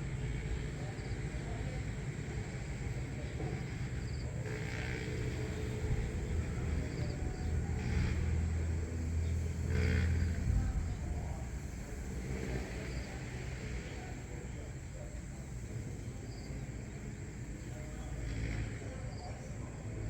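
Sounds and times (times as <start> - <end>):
distant road traffic rumble: 0.0 - 20.0.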